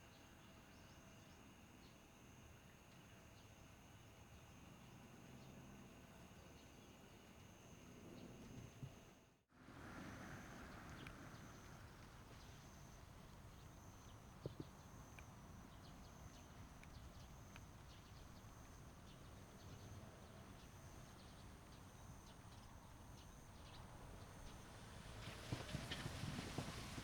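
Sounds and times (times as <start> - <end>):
faint outdoor hiss: 0.0 - 27.0
soft ticks: 10.8 - 19.9.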